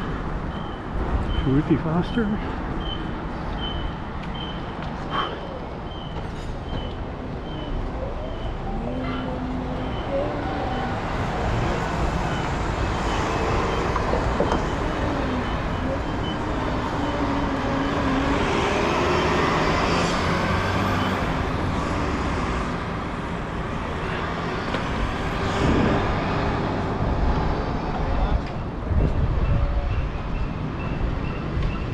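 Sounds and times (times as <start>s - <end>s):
vehicles passing: 0.0s - 31.9s.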